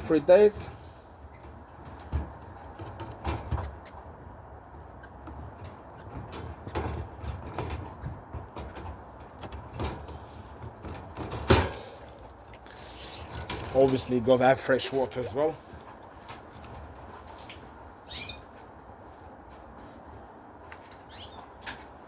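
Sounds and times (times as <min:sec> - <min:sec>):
birdcage being handled: 0:04.8 - 0:15.2.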